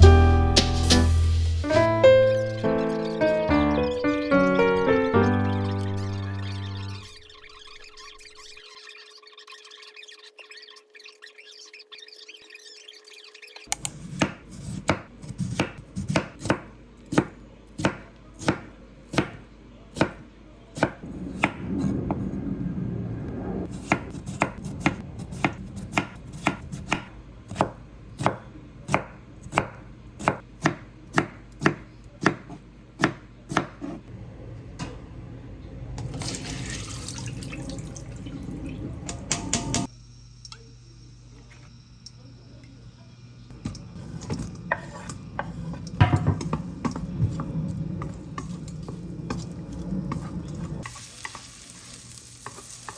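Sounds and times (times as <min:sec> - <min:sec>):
knife chopping on cutting board: 0:13.7 - 0:20.2, 0:23.8 - 0:34.0.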